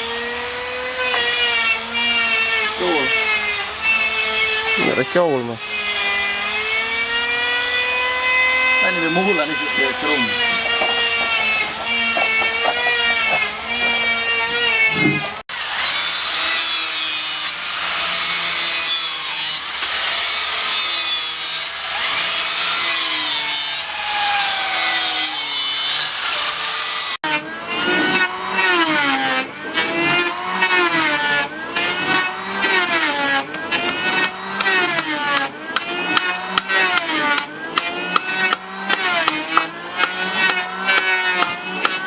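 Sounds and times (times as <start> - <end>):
power tool cutting wood: 0.0 - 42.0
person speaking: 8.8 - 15.4.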